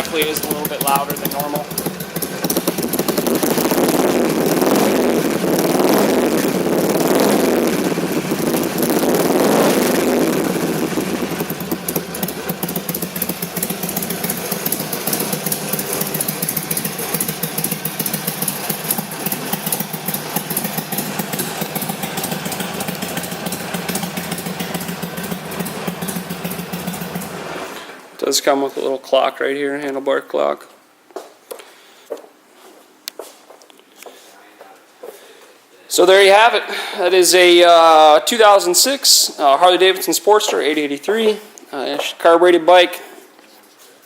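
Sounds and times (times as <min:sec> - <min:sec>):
motorcycle engine revving and idling: 0:00.0 - 0:27.8.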